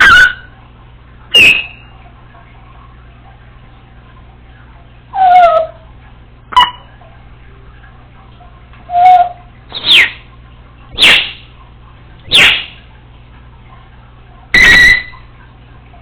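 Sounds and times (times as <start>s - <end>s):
parrot squawk: 0.0s - 0.5s, 1.3s - 1.9s, 5.2s - 5.8s, 6.5s - 6.9s, 8.9s - 10.2s, 11.0s - 11.4s, 12.3s - 12.8s, 14.6s - 15.2s
parrot whistling: 0.0s - 0.5s, 1.3s - 1.9s, 5.2s - 5.8s, 6.5s - 6.9s, 8.9s - 10.2s, 11.0s - 11.4s, 12.3s - 12.8s, 14.5s - 15.2s.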